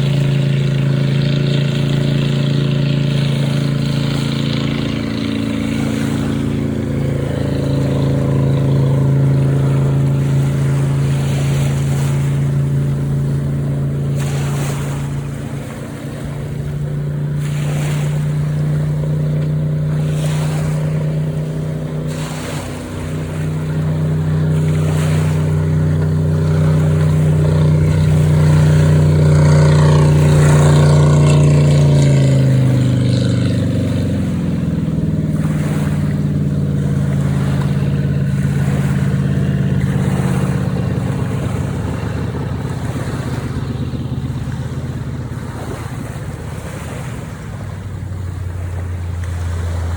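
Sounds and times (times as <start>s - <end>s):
motorboat engine running: 0.0s - 49.9s.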